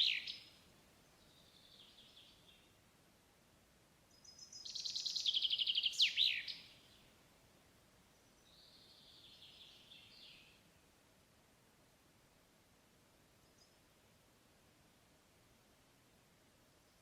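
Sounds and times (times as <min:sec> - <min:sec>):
songbird trilling: 0:04.2 - 0:06.7.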